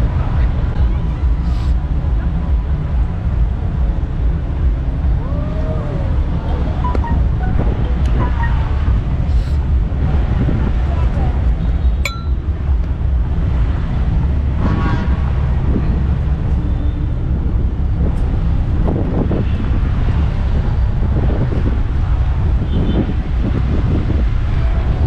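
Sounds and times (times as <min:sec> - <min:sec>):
faint voices: 0:00.0 - 0:12.8
wind buffeting microphone: 0:00.0 - 0:25.0.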